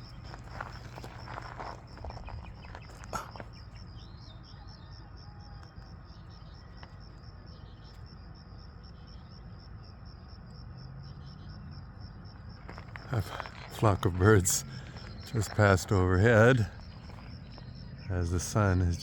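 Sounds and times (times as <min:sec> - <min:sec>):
faint bird calls: 0:00.0 - 0:08.1, 0:12.6 - 0:19.0
cricket chirping: 0:00.0 - 0:19.0
low rural hum: 0:00.0 - 0:19.0.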